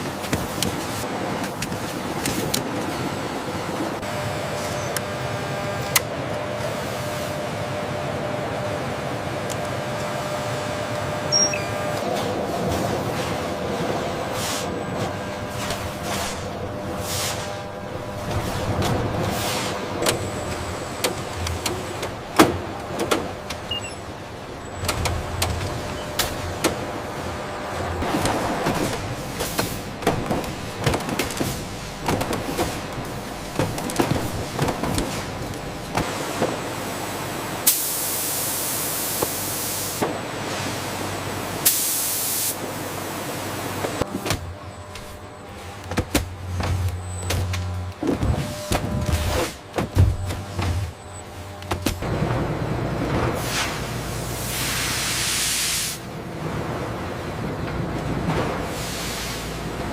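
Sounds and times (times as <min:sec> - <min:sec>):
machinery low hum: 0:00.0 - 0:41.7, 0:42.5 - 0:59.9
machinery clicks and knocks: 0:17.6 - 0:27.0, 0:27.7 - 0:36.6
loud hiss bursts: 0:37.6 - 0:40.0, 0:41.6 - 0:42.6, 0:53.4 - 0:56.1.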